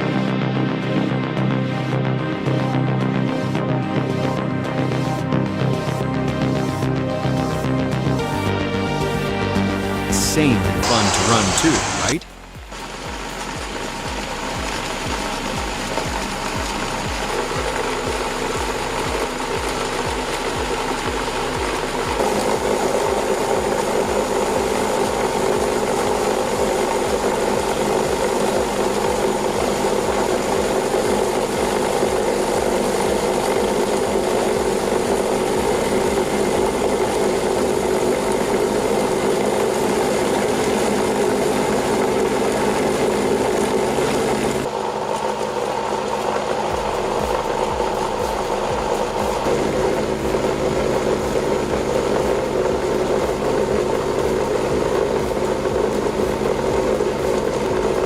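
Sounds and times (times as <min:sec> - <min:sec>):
machine running with clatter: 0:10.8 - 0:58.0.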